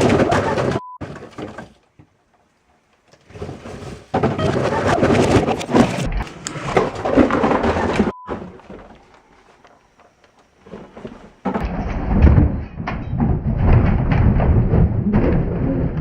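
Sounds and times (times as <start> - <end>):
shoes and boxes tumbling down: 0.0 - 2.2, 3.1 - 11.6.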